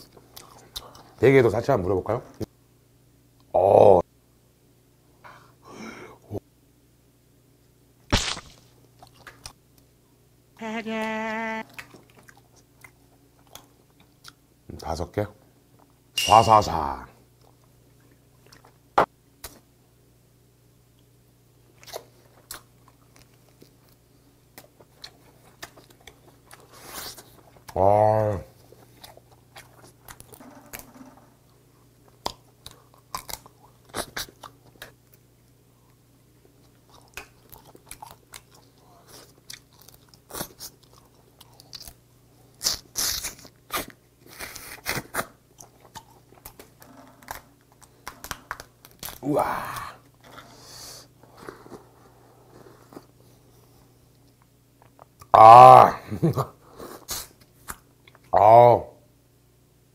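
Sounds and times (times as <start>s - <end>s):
chewing with wet clicks: 11.7s - 14.4s, 17.4s - 18.8s, 21.8s - 26.7s, 28.9s - 30.9s, 32.0s - 42.0s, 45.5s - 49.2s, 57.4s - 58.3s.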